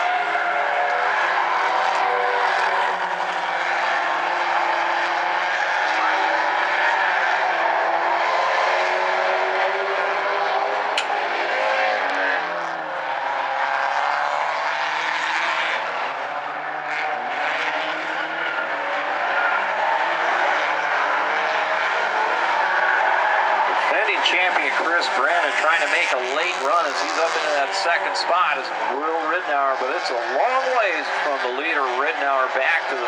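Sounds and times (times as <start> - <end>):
race car engines passing: 0.0 - 33.0
roar of tyre and engine noise: 0.0 - 33.0.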